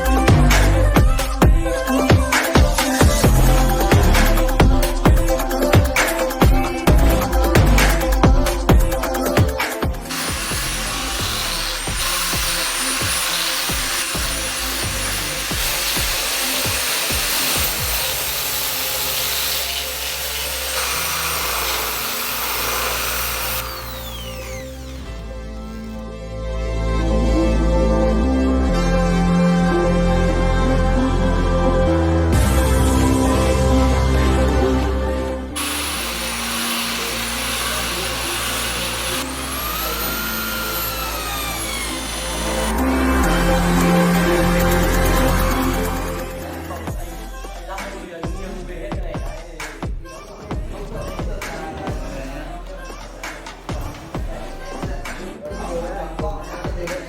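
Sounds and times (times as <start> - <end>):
background music: 0.0 - 57.0
electric power tool whining: 10.0 - 26.2, 35.5 - 46.2.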